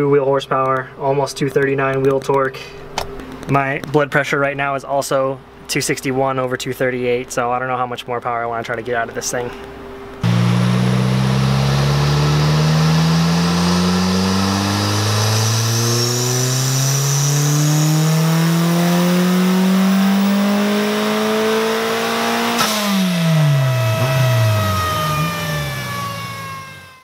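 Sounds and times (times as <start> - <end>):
car engine revving at full throttle: 10.2 - 27.0
rush of noise as throttle closes: 10.2 - 27.0.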